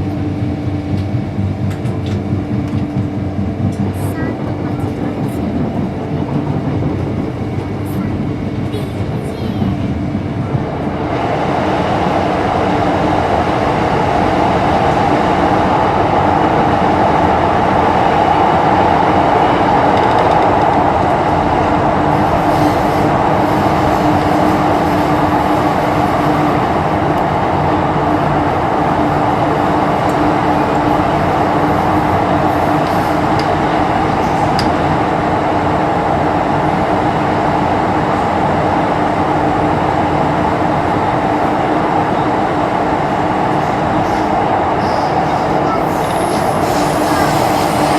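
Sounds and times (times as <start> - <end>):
train rumbling inside carriage: 0.0 - 47.9.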